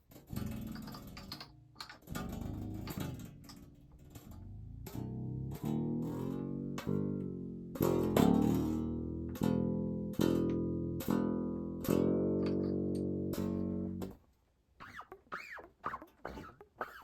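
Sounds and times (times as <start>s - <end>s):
electric guitar strings plucked: 2.1s - 14.2s.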